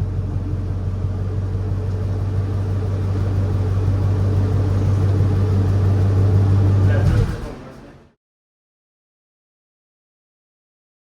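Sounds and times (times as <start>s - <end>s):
pickup truck engine droning: 0.0s - 8.0s.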